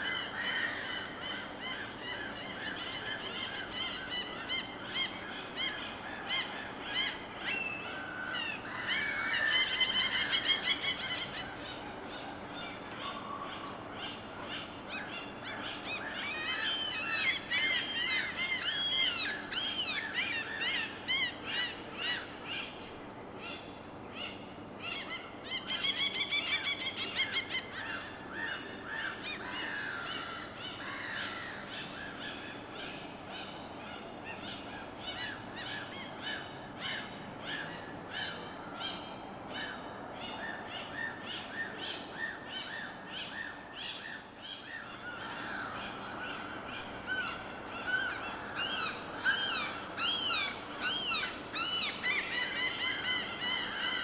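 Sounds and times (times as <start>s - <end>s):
birds calling: 23.5s - 54.0s.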